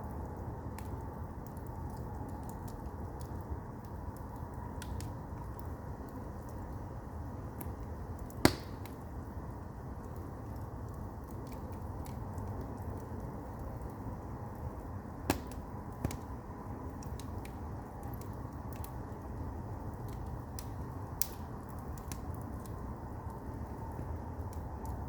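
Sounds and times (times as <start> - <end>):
firewood burning with crackles: 0.0 - 25.0
sharp pops of fire: 7.6 - 9.1, 15.2 - 16.4, 20.0 - 22.8.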